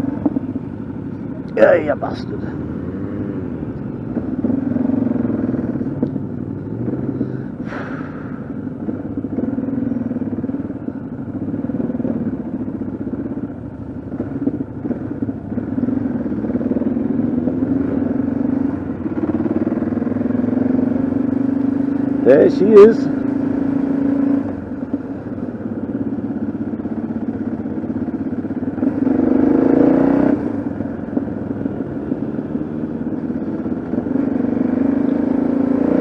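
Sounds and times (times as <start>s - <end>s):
motorcycle engine revving: 0.0s - 36.0s
brief sharp noise: 7.6s - 8.4s.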